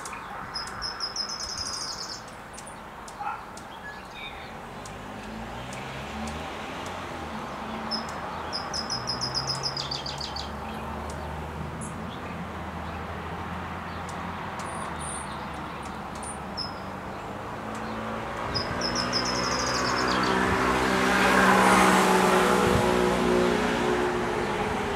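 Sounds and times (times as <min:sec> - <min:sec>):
small bird chirping: 0:00.0 - 0:06.4, 0:07.7 - 0:12.4, 0:13.9 - 0:20.4
outdoor background noise: 0:00.0 - 0:24.9
vehicle passing: 0:04.4 - 0:24.9.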